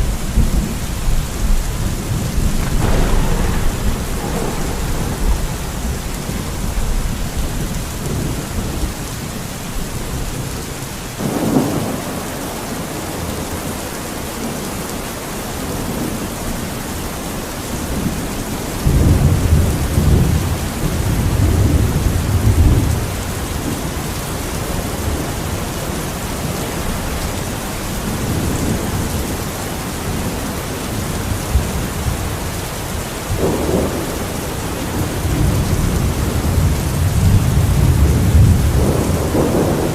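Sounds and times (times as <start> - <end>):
thunder rolling: 0.0 - 12.4, 33.3 - 39.9
heavy rain: 0.0 - 39.9.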